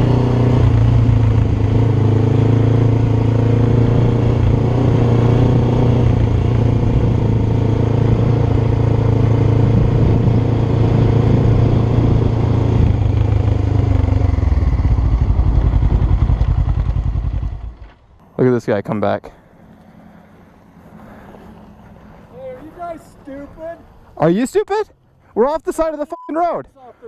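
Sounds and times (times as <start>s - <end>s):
motorcycle engine running: 0.0s - 18.4s.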